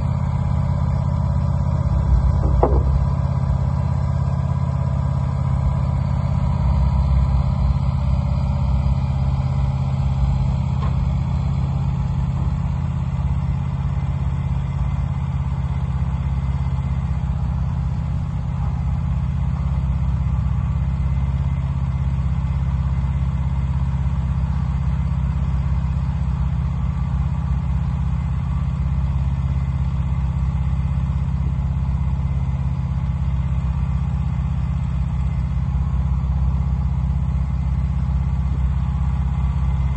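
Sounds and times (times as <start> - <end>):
band sawmill engine running: 0.0 - 17.8.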